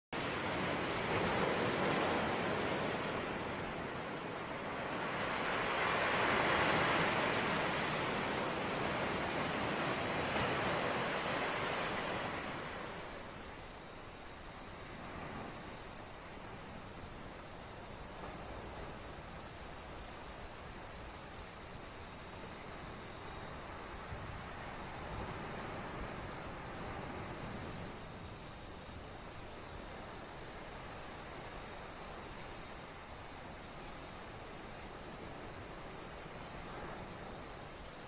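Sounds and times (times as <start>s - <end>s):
ocean waves washing: 0.2s - 21.1s.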